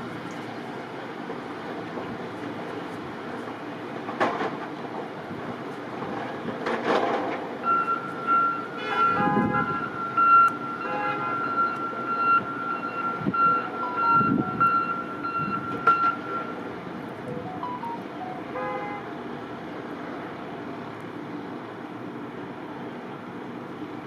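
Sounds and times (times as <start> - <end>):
rumble of vehicle noise: 0.0 - 24.0
reversing alarm beeping: 7.6 - 16.7, 17.3 - 18.6
car horn honking: 8.8 - 9.9, 10.8 - 11.7, 18.5 - 19.1.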